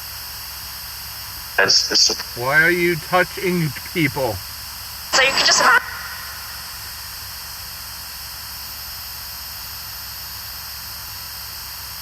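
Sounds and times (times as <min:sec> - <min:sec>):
background hiss: 0:01.4 - 0:04.6
faint low hum: 0:01.6 - 0:04.6.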